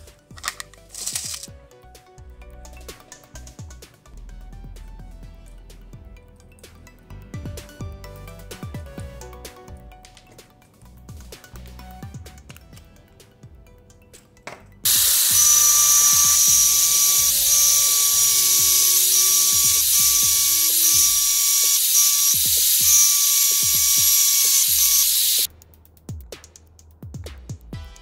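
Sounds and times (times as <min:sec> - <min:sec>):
background music with a beat: 0:00.0 - 0:14.9, 0:24.8 - 0:28.0
angle grinder grinding steel: 0:14.9 - 0:25.5.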